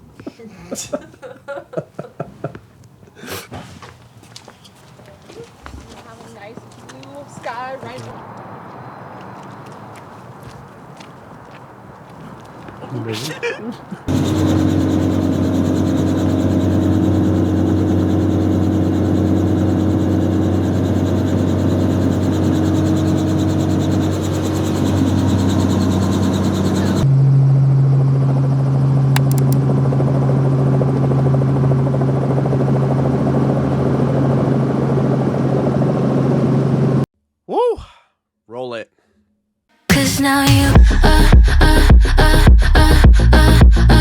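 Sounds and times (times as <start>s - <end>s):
helicopter engine and rotor drone: 14.1s - 37.0s.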